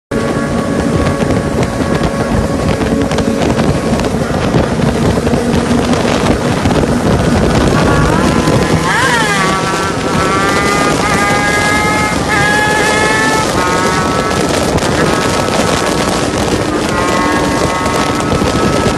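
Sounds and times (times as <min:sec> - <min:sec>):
wind noise on microphone: 0:00.1 - 0:18.9
motorcycle engine revving: 0:00.2 - 0:18.9.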